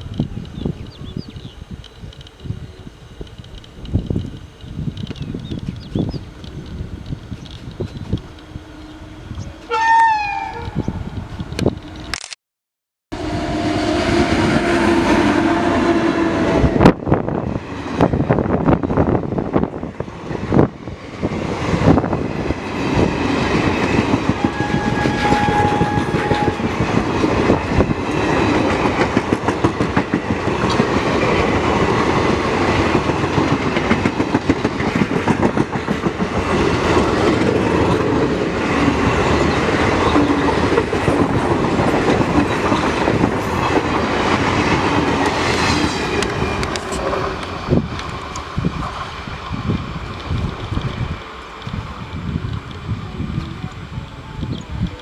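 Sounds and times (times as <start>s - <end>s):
train horn: 8.5s - 11.0s, 13.2s - 17.0s, 24.2s - 27.0s, 45.9s - 47.5s
train wheels clattering over rails: 14.6s - 51.8s.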